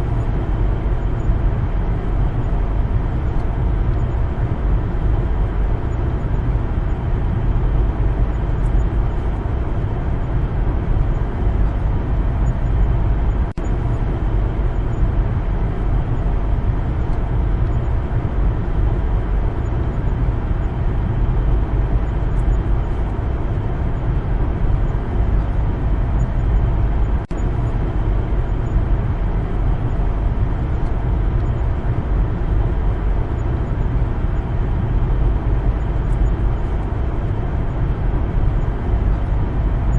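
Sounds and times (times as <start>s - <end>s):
car driving on road: 0.0s - 39.9s.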